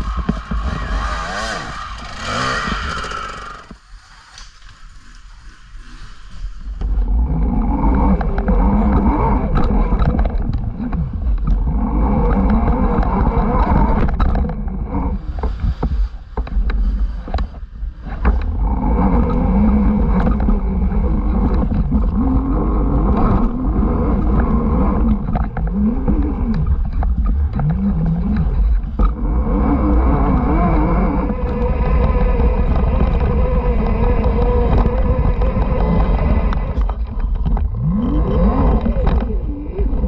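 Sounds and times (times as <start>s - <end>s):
motorbike engine revving: 0.0s - 3.8s, 6.8s - 15.8s, 16.9s - 40.0s
wind rumble on microphone: 0.0s - 40.0s.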